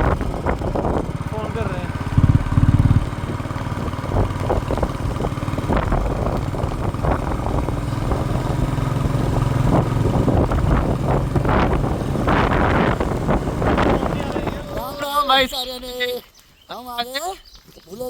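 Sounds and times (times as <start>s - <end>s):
motorcycle engine running: 0.0s - 15.4s
wind rushing over microphone: 0.0s - 15.5s.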